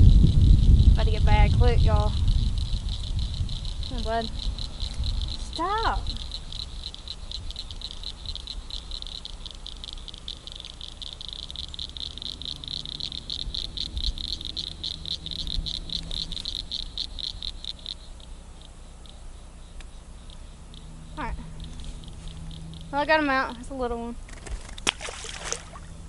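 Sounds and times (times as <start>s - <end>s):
low rumble: 0.0s - 9.0s, 11.2s - 17.5s
insects chirping: 0.0s - 26.0s.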